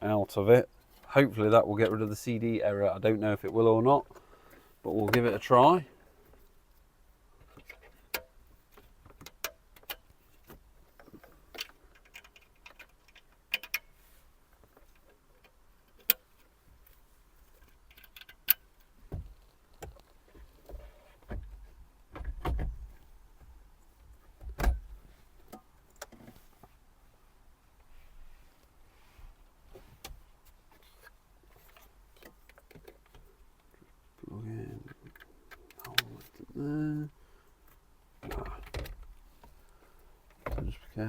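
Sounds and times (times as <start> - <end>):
clicks and knocks of handling: 7.4 - 14.0, 14.6 - 23.5, 29.7 - 34.0, 34.8 - 36.5.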